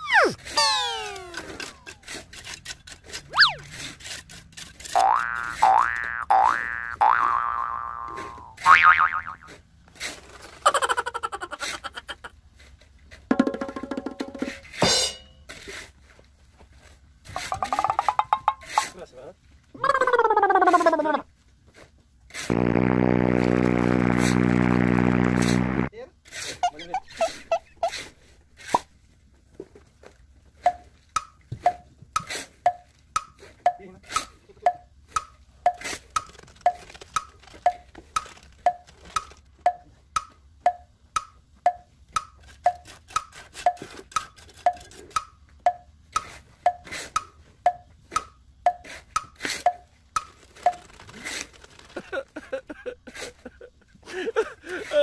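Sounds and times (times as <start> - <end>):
hand hammering with ringing: 30.7 - 31.9, 32.7 - 33.8, 34.6 - 35.8, 39.7 - 42.8, 44.7 - 45.9, 46.7 - 49.9.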